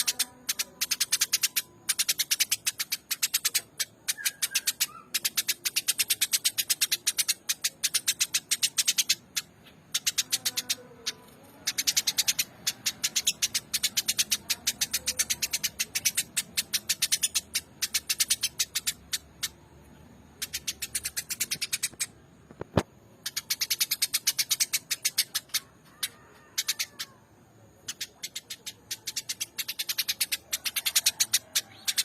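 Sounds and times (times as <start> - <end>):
sparrow chirping: 0.0 - 22.2, 23.2 - 32.0.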